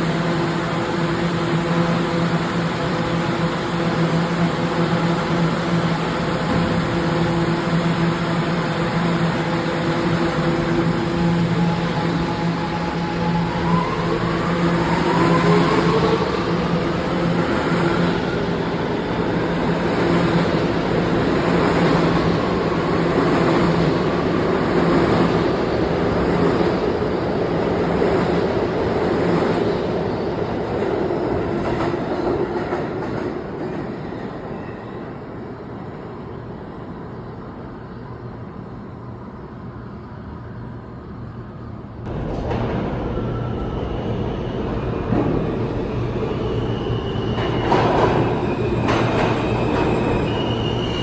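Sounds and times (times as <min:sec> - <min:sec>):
subway train rumbling: 0:00.0 - 0:51.0.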